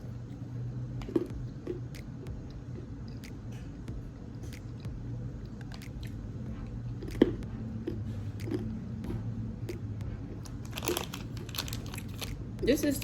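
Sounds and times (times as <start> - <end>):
chewing crunches: 6.9 - 8.8, 9.6 - 12.4.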